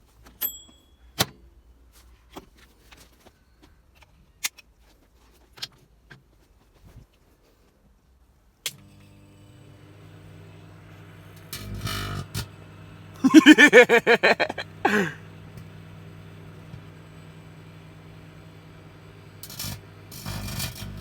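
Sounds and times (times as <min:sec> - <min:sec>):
microwave mains hum: 0:08.7 - 0:21.0.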